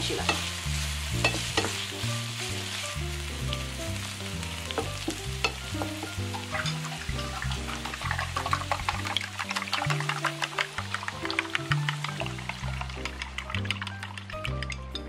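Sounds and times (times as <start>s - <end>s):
background music with bass line: 0.0s - 15.0s
peppers sizzling in oil: 0.0s - 15.0s
wooden spatula stirring: 4.9s - 14.8s.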